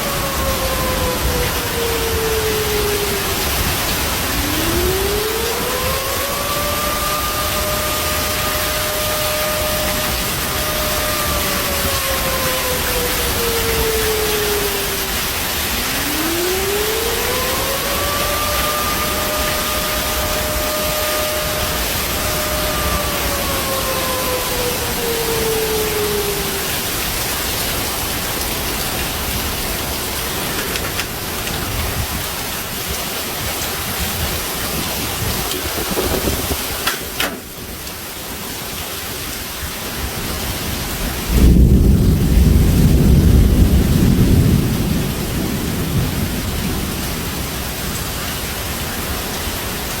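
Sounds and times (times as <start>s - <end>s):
falling tone: 0.0s - 27.2s
heavy rain falling: 0.0s - 50.0s
loud low thunder rumble: 41.1s - 48.1s.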